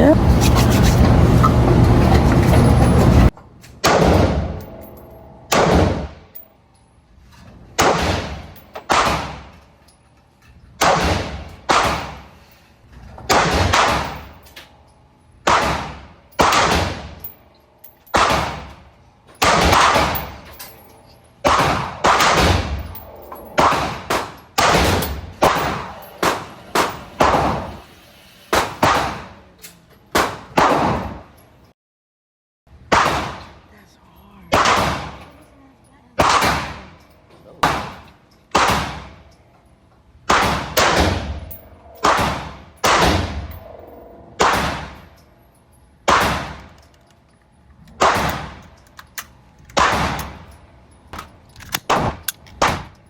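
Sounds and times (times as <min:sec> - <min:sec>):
loud steady car noise: 0:00.0 - 0:03.4
gunshots with ringing decay: 0:03.8 - 0:04.6, 0:05.5 - 0:06.2, 0:07.8 - 0:09.5, 0:10.8 - 0:12.3, 0:13.3 - 0:14.3, 0:15.4 - 0:17.2, 0:18.1 - 0:18.7, 0:19.4 - 0:20.5, 0:21.4 - 0:22.9, 0:23.5 - 0:27.8, 0:32.9 - 0:33.6, 0:34.5 - 0:35.3, 0:36.2 - 0:37.0, 0:37.6 - 0:39.2, 0:40.3 - 0:43.6, 0:44.4 - 0:45.1, 0:46.1 - 0:46.7, 0:48.0 - 0:48.6, 0:49.8 - 0:50.4.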